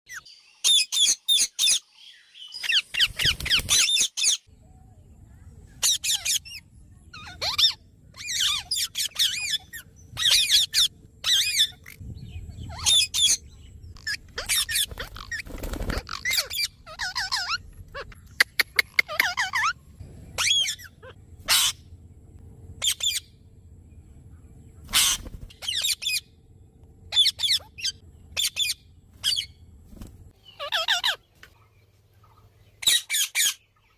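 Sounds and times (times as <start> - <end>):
parakeet squawking and chattering: 5.8 - 19.8, 20.4 - 21.9, 22.8 - 23.4, 24.9 - 26.3, 27.1 - 29.6, 30.4 - 31.3, 32.8 - 33.6.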